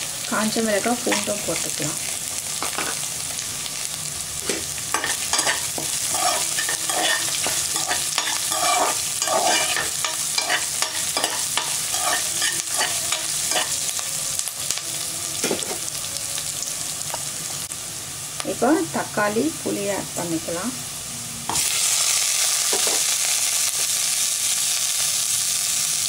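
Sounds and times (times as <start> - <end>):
food sizzling in hot oil: 0.0 - 26.0
spoon scraping and knocking pot: 4.4 - 13.7, 22.7 - 23.0.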